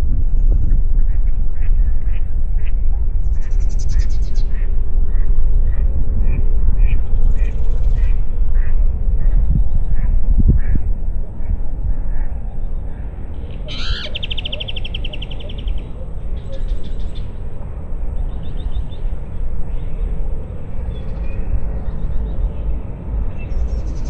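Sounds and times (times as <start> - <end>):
low rumble of wind: 0.0 - 24.0
birds singing: 13.5 - 17.4.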